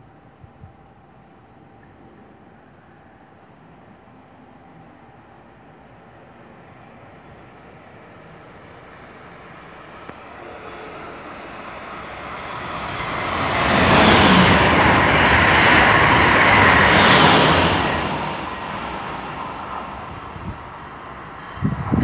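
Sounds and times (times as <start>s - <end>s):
high-speed train rushing past: 2.4s - 22.0s.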